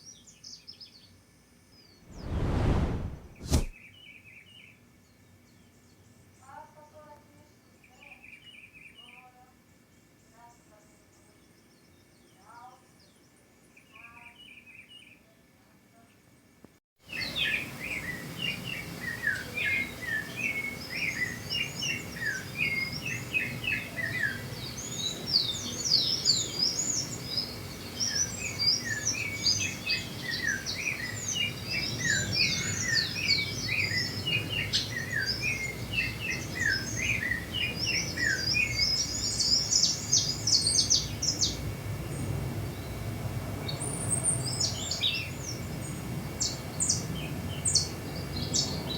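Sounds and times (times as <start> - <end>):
small birds chirping: 17.1 - 43.0.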